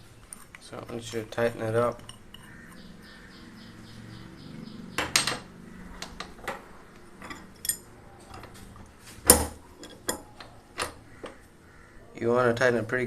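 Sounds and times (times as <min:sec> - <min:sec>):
wrench clinking against metal valve: 0:07.2 - 0:07.9.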